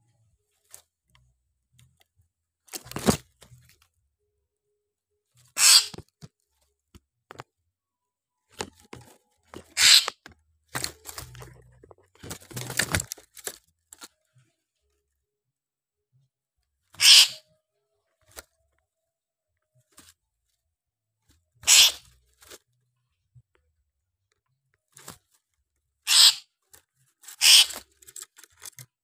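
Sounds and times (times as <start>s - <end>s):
bird harsh rasping calls: 5.6s - 6.0s, 9.7s - 10.2s, 17.0s - 17.4s, 21.6s - 22.1s, 26.1s - 26.5s, 27.3s - 27.8s
bird scuffling against cage: 8.5s - 13.6s.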